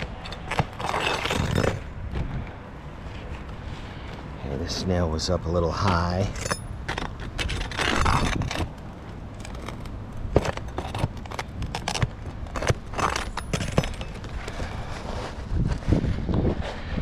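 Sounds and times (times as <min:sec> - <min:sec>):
metal tool scraping shingles: 0:00.0 - 0:01.8, 0:06.0 - 0:15.1.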